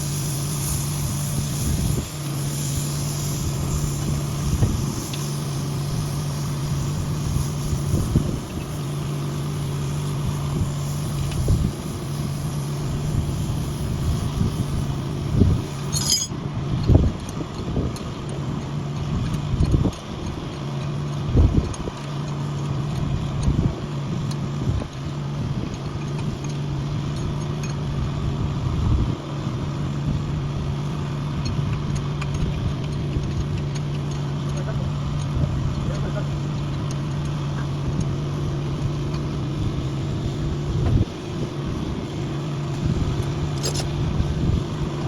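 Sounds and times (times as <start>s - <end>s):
engine idling: 0.0s - 45.0s
metallic knocks and clinks: 15.9s - 16.4s
sharp click: 15.9s - 16.4s.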